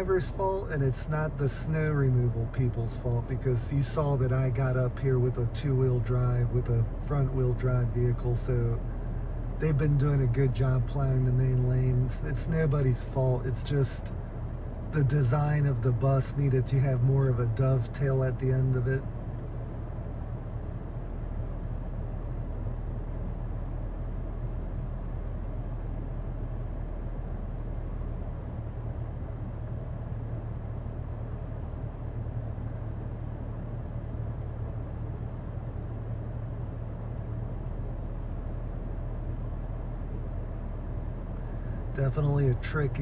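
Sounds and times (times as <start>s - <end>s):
vehicle engine idling: 0.0s - 43.0s.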